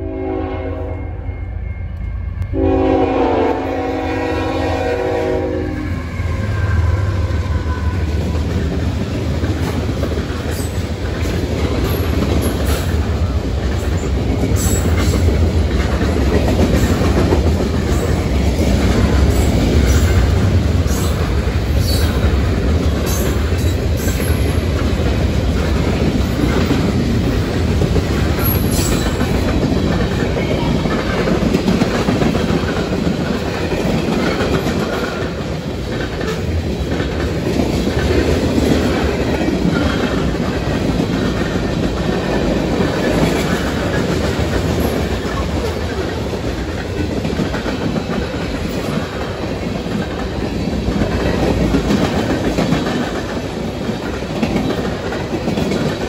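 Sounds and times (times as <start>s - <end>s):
train horn: 0.0s - 8.1s
freight train rumbling: 0.0s - 56.0s.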